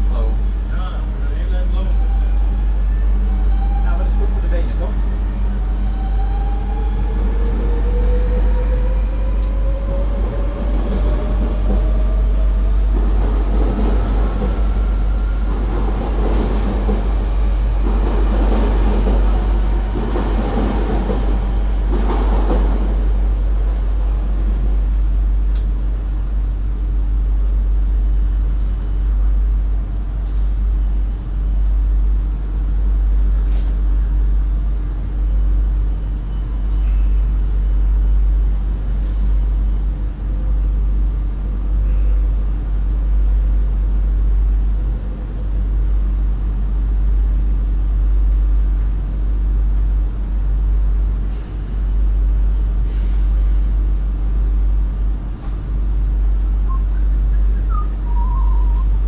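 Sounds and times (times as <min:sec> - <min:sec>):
stationary electric train humming: 0:00.0 - 0:59.0.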